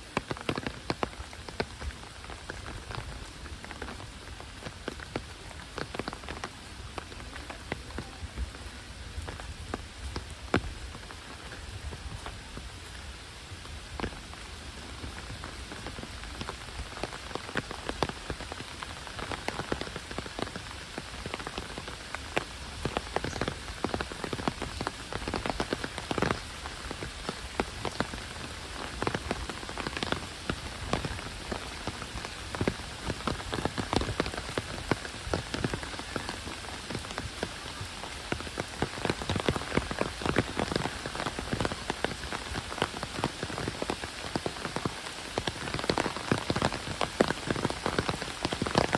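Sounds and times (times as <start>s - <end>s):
heavy rain hissing: 0.0s - 48.9s
sharp raindrop strikes: 0.0s - 48.9s.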